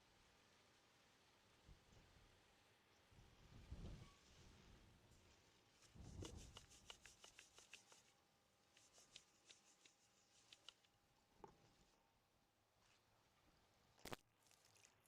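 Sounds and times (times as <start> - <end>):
rustling: 5.2 - 12.0
quick crisp clicks: 8.8 - 11.0.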